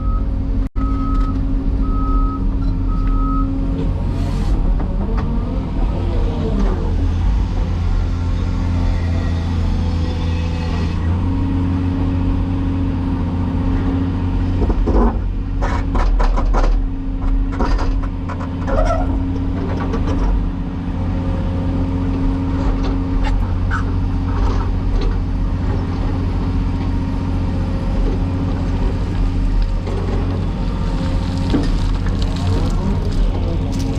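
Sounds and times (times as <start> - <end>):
excavator diesel engine running: 18.1 - 33.9.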